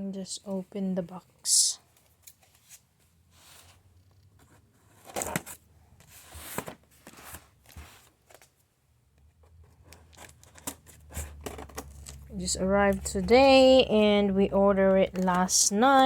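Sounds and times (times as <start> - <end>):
cardboard rustling and crinkling: 1.9 - 8.7, 9.5 - 13.8.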